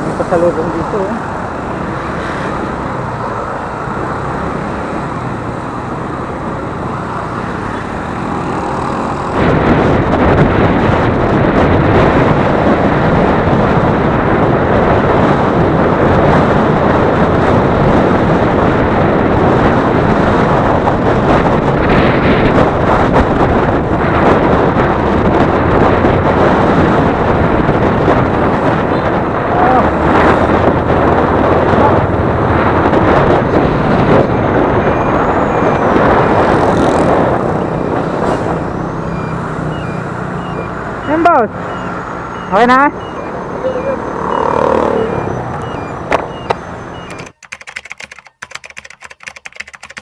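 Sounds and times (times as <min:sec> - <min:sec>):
wind on microphone: 0:00.0 - 0:47.4
road noise: 0:00.0 - 0:50.0
motorcycle engine: 0:01.3 - 0:12.4, 0:29.5 - 0:47.2.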